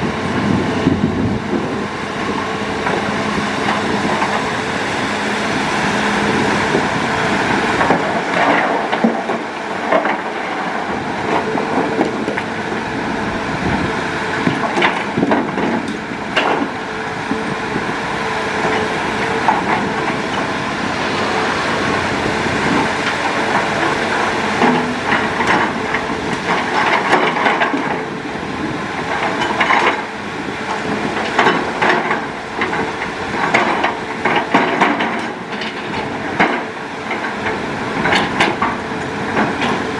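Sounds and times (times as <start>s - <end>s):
excavator engine and hydraulics: 0.0s - 39.9s
metal clanks and knocks: 23.0s - 28.0s, 29.1s - 30.1s, 31.2s - 39.9s.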